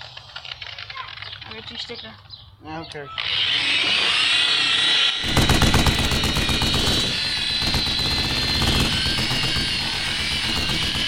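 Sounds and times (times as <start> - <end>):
motor running with pulsing whine: 3.2 - 11.0.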